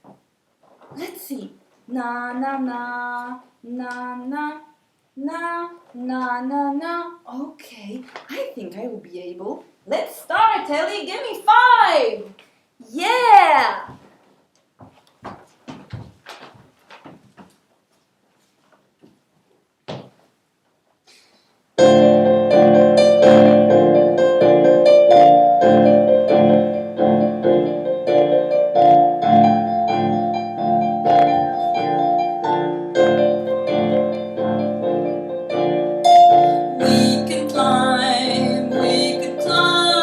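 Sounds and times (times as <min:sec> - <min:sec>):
electronic keyboard piano chords: 0:21.8 - 0:40.0.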